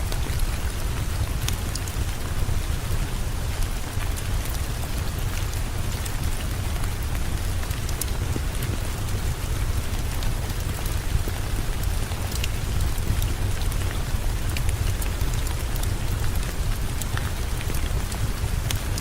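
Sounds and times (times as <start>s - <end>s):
heavy rain falling: 0.0s - 19.0s
sharp ticks and crackles: 4.0s - 19.0s.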